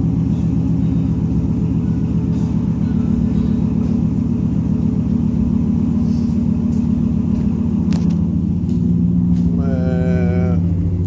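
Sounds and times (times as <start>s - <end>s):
truck engine deep rumble: 0.0s - 11.0s.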